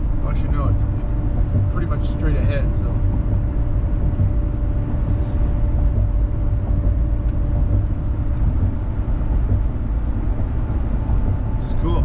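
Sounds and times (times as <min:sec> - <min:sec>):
engine and road rumble: 0:00.0 - 0:12.0
faint steady hum: 0:00.0 - 0:12.0.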